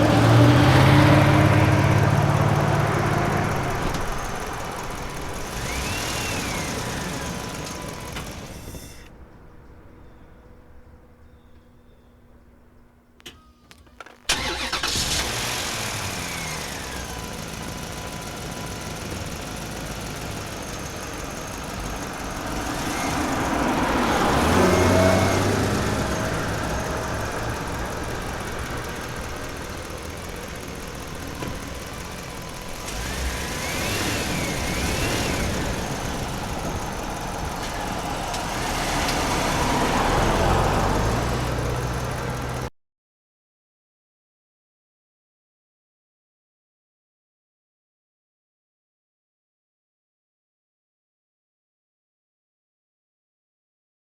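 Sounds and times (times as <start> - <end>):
vehicle engine: 0.0 - 11.7, 12.3 - 42.7.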